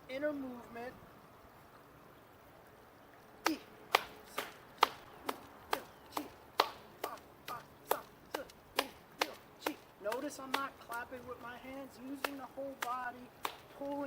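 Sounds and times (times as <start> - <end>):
hands clapping rhythmically: 3.4 - 11.4, 12.0 - 14.0.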